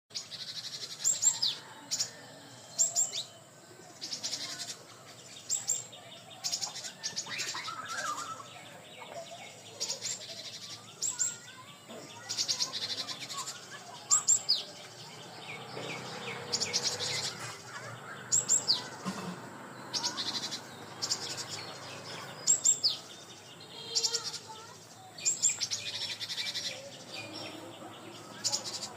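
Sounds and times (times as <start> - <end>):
birds singing and chirping: 0.1 - 28.9.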